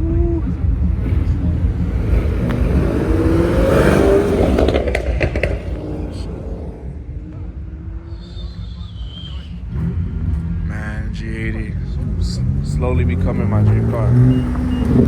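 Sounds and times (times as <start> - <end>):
car engine revving past: 0.8 - 8.1, 9.5 - 15.0
sharp exhaust cracks: 2.1 - 6.8.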